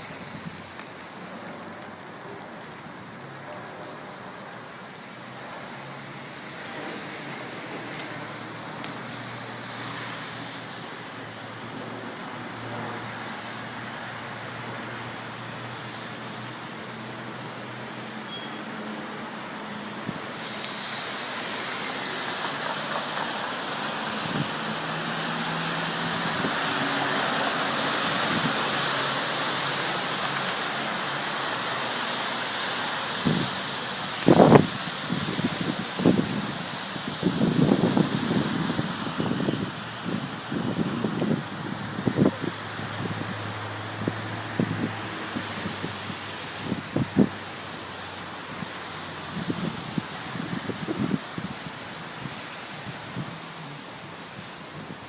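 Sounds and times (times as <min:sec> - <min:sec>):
rain hiss: 0:00.0 - 0:55.0.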